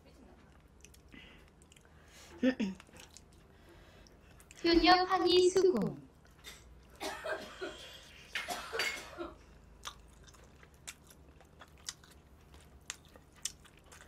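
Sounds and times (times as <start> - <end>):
person biting and chewing: 9.8 - 14.0.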